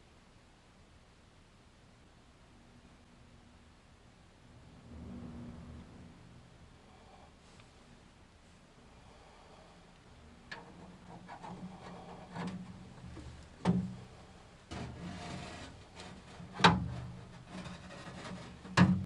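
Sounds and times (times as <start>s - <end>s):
knocks and clunks: 10.5s - 14.1s, 14.7s - 19.0s
rubbing and scraping: 10.5s - 19.0s.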